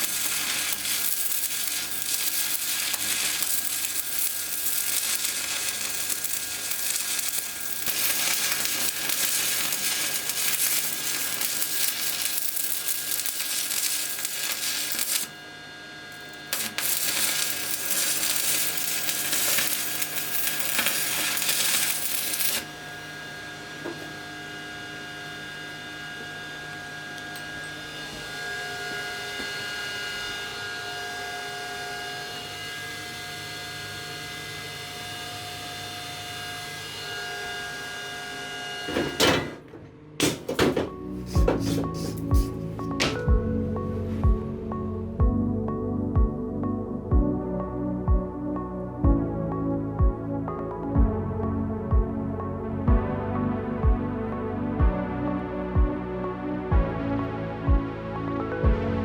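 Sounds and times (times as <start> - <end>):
arc welding crackling sizzle: 0.0 - 15.5, 16.1 - 23.2, 40.2 - 43.3
steady hum: 0.0 - 23.8, 40.0 - 46.3.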